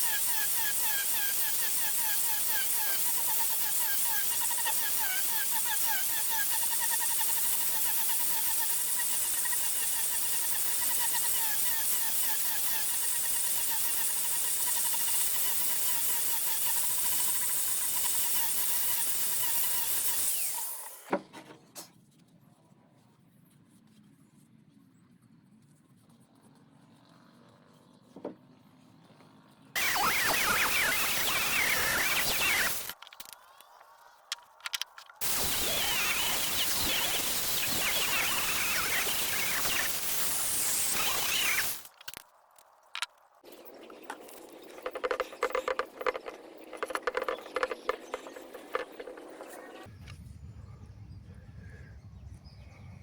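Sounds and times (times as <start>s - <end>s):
power tool whining: 0.0s - 21.2s, 29.8s - 33.0s, 35.2s - 42.2s
steady high hiss: 35.2s - 42.0s
birds chirping: 43.8s - 53.0s.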